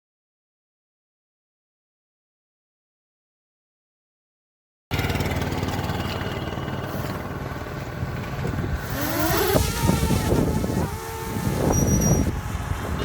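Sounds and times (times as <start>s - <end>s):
vehicle engine and road rumble: 4.9s - 13.0s
rising tones: 8.8s - 13.0s.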